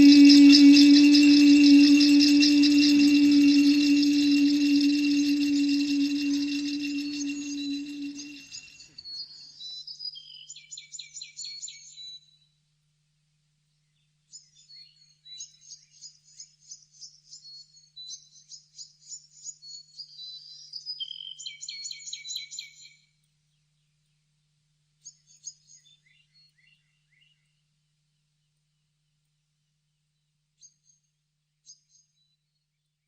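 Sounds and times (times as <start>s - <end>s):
faint low hum: 0.0s - 8.5s
bird chirping: 0.0s - 8.6s.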